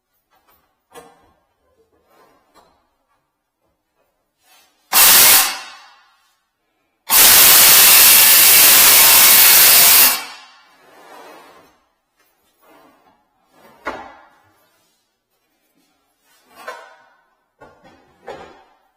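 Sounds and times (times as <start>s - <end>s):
loud rushing hiss: 4.9s - 5.9s, 7.1s - 10.5s.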